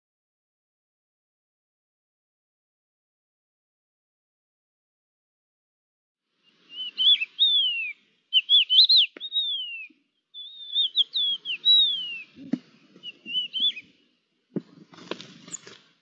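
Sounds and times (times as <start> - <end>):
songbird singing whistled phrases: 6.5 - 12.4, 13.0 - 14.0.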